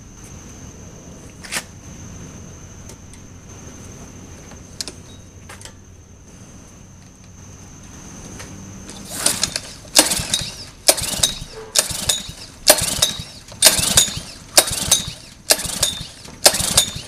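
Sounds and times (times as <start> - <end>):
faint high whine: 0.0 - 17.0
sharp clicks: 8.9 - 17.0.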